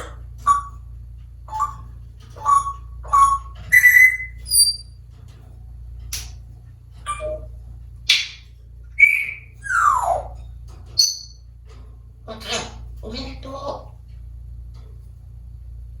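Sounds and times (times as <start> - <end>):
parrot whistling: 0.0 - 0.8, 1.5 - 1.8, 2.4 - 4.9, 7.1 - 7.5, 9.0 - 10.4
sharp click: 6.1 - 6.4.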